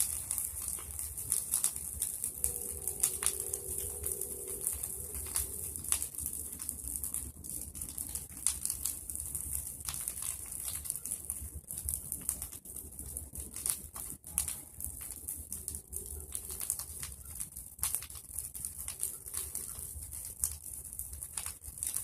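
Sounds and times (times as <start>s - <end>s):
brush fire crackling: 0.0s - 22.0s
dove cooing: 2.1s - 6.2s.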